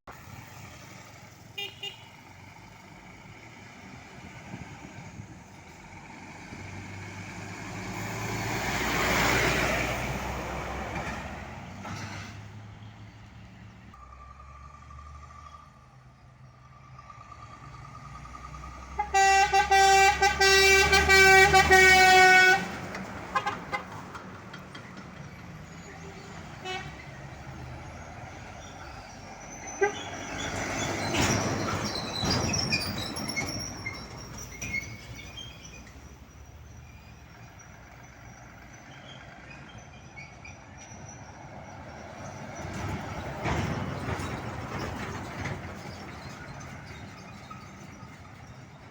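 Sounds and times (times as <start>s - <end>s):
truck air horn blast: 1.6s - 2.2s, 18.9s - 23.9s, 26.6s - 27.0s
vehicle passing: 2.4s - 31.8s.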